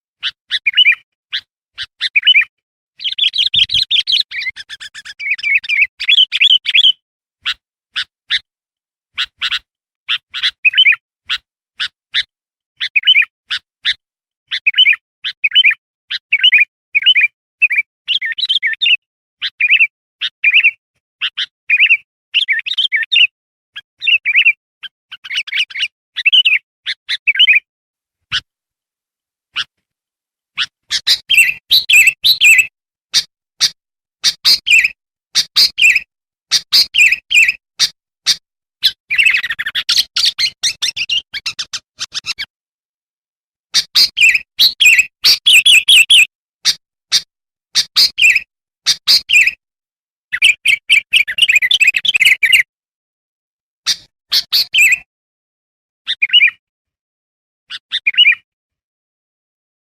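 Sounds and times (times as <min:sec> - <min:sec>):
bird singing bubbly chirps: 0:00.6 - 0:01.0, 0:02.0 - 0:07.0, 0:30.9 - 0:32.7, 0:44.0 - 0:46.3.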